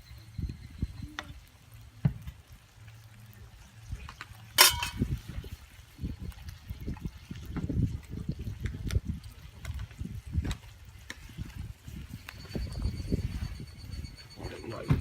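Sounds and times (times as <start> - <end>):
rice and water frying in pan: 0.0 - 15.0
sharp metallic clink: 4.6 - 5.0.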